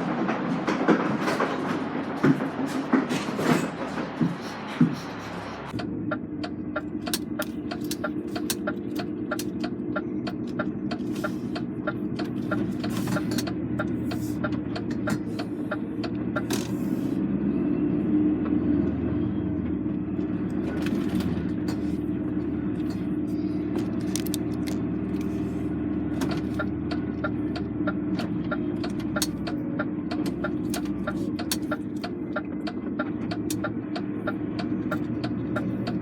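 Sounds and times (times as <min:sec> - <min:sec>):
diesel engine running: 0:00.0 - 0:36.0
even ticking: 0:05.7 - 0:16.6, 0:26.2 - 0:36.0.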